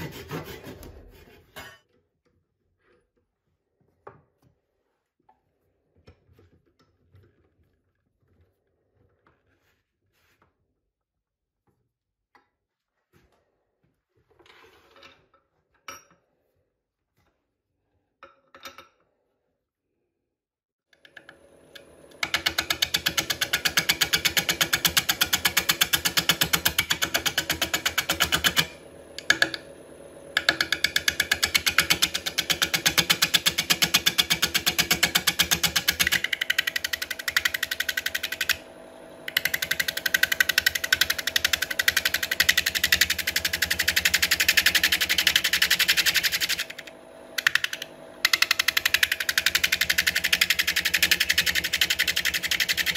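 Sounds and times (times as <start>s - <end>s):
wood lathe tool rattling: 22.2s - 29.6s, 30.4s - 52.9s.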